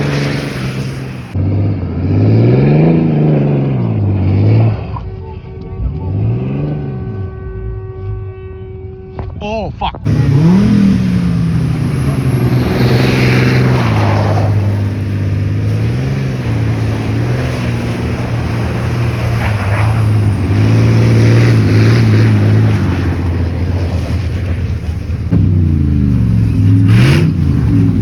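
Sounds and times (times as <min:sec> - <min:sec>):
car engine revving hard: 0:00.0 - 0:05.0, 0:10.1 - 0:24.4, 0:25.3 - 0:28.0.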